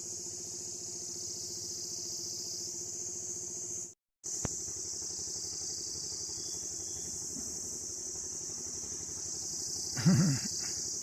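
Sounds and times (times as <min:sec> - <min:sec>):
crickets chirping: 0:00.0 - 0:11.0
low pulsing mechanical hum: 0:00.0 - 0:11.0.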